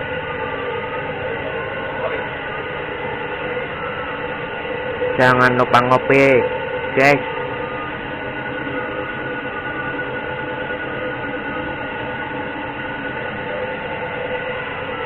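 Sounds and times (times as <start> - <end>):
air compressor running: 0.0 - 15.0.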